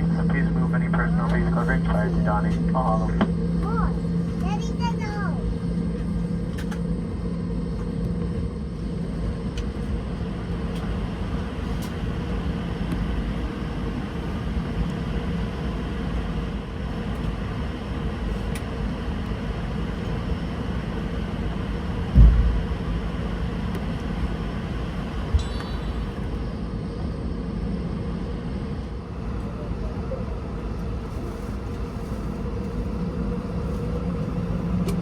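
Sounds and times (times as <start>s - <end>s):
jet engines humming: 0.0s - 35.0s
low thump: 22.1s - 22.6s.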